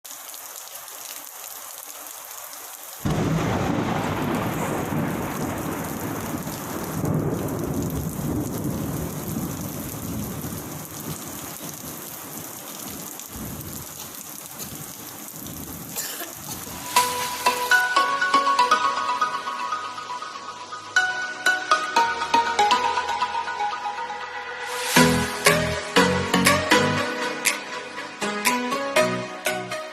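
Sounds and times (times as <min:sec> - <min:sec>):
rain hiss: 0:00.0 - 0:18.2, 0:24.6 - 0:26.1
thunderclap rumbling: 0:03.1 - 0:17.5
music: 0:16.8 - 0:29.9.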